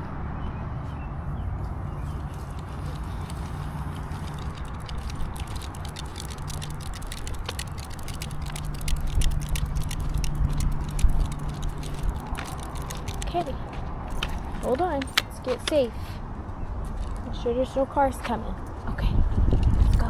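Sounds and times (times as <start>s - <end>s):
road traffic rumble: 0.0s - 20.0s
rapid light ticking: 2.2s - 15.8s.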